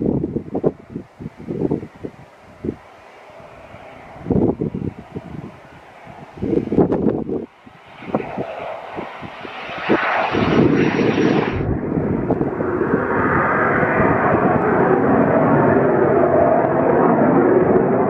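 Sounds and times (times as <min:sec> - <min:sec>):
aircraft engine: 0:00.0 - 0:18.0
high thin whine: 0:08.1 - 0:12.6.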